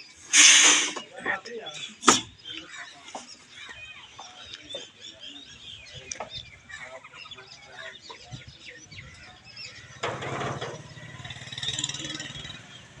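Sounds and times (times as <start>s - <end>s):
poultry and birds chirping: 0.0s - 13.0s
short hiss-like burst: 0.3s - 1.0s.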